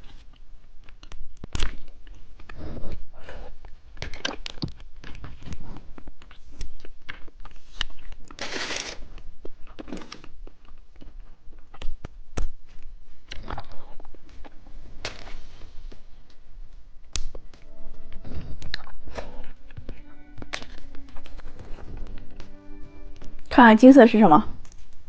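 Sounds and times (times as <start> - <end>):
crinkling rustle: 3.5 - 22.6, 24.4 - 25.0
candy crunching: 6.0 - 14.6.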